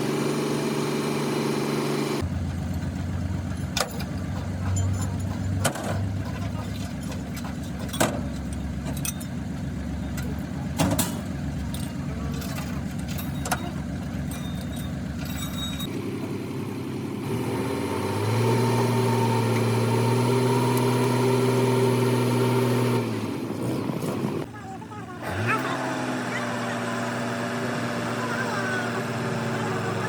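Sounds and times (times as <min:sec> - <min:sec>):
engine rumbling: 0:00.0 - 0:30.0
engine revving to higher pitch: 0:17.1 - 0:24.3, 0:25.2 - 0:30.0.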